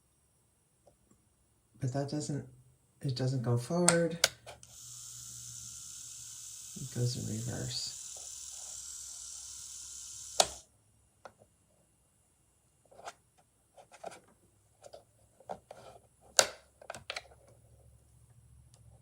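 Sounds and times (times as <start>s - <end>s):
electric nail drill whirring: 4.6s - 10.7s.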